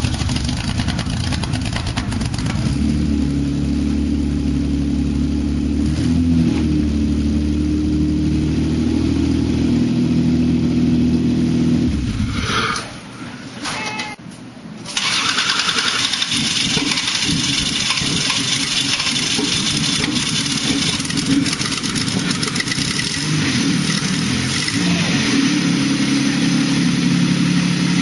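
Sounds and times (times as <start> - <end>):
car engine starting and idling: 0.0 - 6.1, 14.8 - 26.1.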